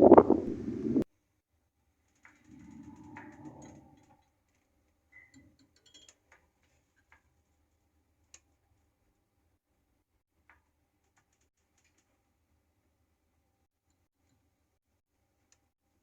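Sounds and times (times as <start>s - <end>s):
faint low rumble: 0.0s - 1.0s, 2.4s - 4.2s
faint clicks: 2.1s - 4.3s.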